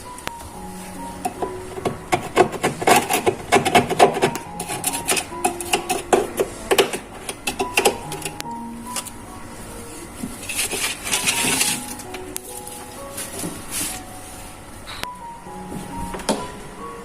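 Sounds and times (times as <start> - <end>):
hard objects clicking and knocking: 1.3 - 8.5.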